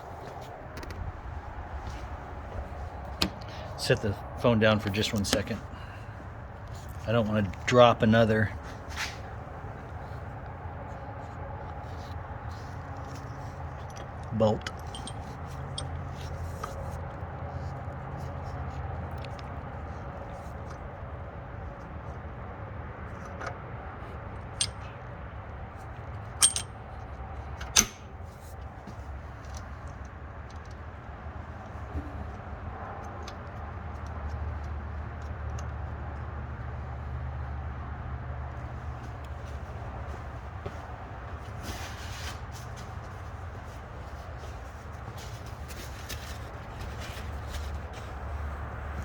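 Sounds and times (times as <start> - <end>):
steady low hum: 0.0 - 17.2
metal engine parts clicking: 13.7 - 16.8, 24.4 - 25.0, 26.2 - 28.2
metal tools clinking: 13.8 - 16.7, 24.6 - 25.0, 26.4 - 26.8.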